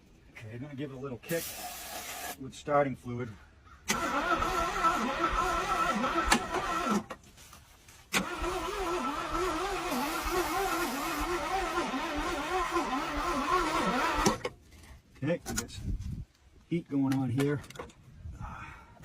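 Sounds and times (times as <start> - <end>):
starter motor cranking: 3.9 - 7.2, 8.1 - 14.6.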